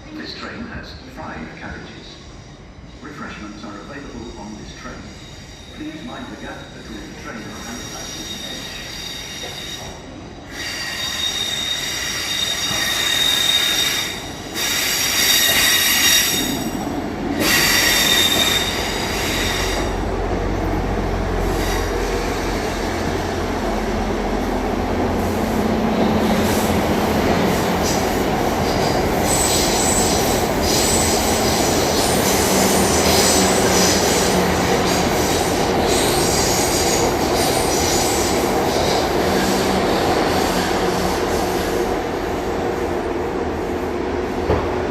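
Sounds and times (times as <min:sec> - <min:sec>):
train wheels rumbling on track: 0:00.0 - 0:44.9
train wheels squealing: 0:01.8 - 0:16.8, 0:17.4 - 0:20.0, 0:28.6 - 0:34.3.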